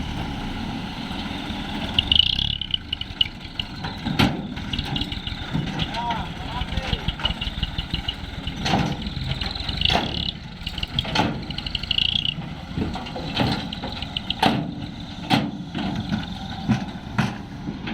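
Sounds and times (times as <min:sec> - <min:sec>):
truck engine running: 0:00.0 - 0:17.9
high-pitched pulsing chirp: 0:01.8 - 0:12.4, 0:13.6 - 0:14.5
sharp knocks and clatters: 0:01.9 - 0:17.9.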